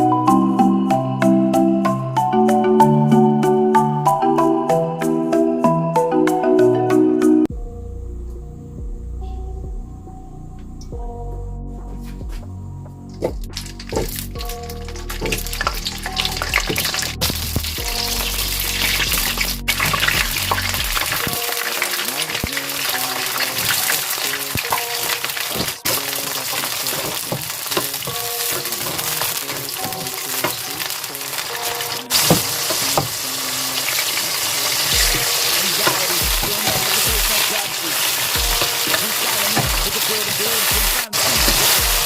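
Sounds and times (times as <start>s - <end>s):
background music: 0.0s - 42.0s
food sizzling in oil: 13.6s - 42.0s.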